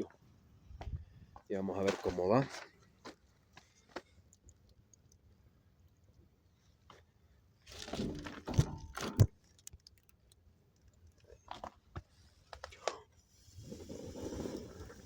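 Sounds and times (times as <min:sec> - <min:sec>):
handling clatter scraping and knocking: 0:07.7 - 0:09.3.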